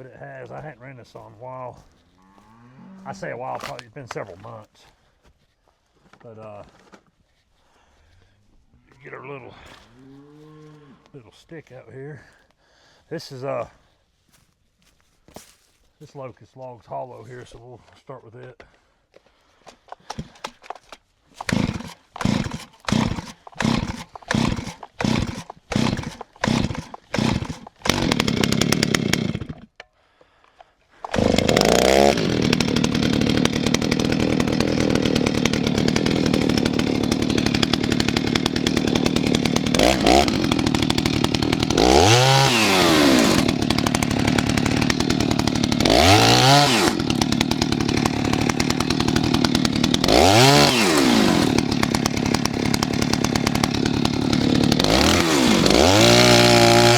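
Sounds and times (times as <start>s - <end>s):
chainsaw engine revving: 2.8s - 3.9s, 21.4s - 29.8s, 31.0s - 56.9s.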